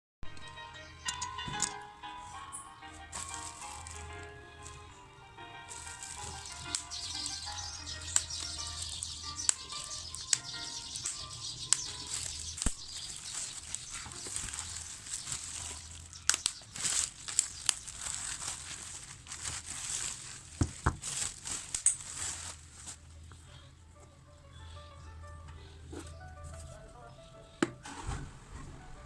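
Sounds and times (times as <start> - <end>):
plastic wrapping crinkling and tearing: 2.9 - 4.9, 5.7 - 23.2
sharp clicks and snaps: 16.2 - 16.6.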